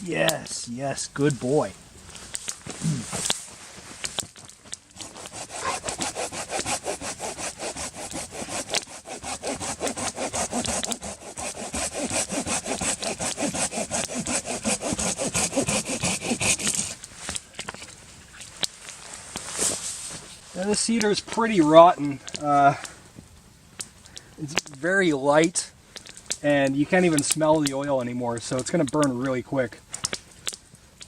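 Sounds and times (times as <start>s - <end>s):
saw cutting wood: 4.9s - 17.0s.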